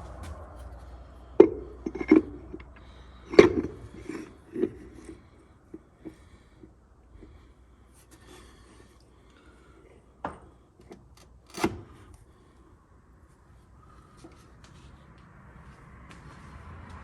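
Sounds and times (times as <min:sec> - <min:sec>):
small metal clicks: 0:10.8 - 0:12.2.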